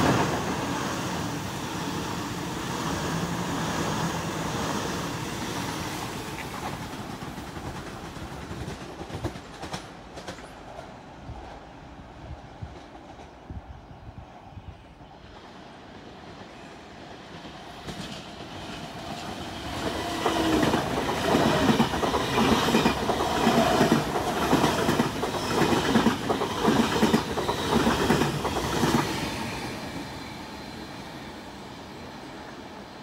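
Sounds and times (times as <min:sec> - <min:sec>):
train wheels clattering over rail joints: 0:06.4 - 0:10.9, 0:17.8 - 0:29.1.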